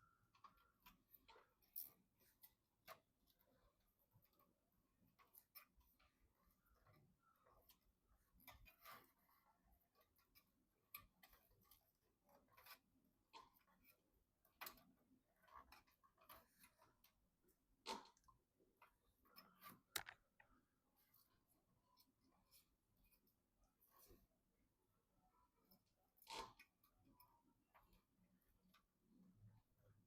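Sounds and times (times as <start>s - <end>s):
computer hardware clicks and taps: 14.6s - 20.8s.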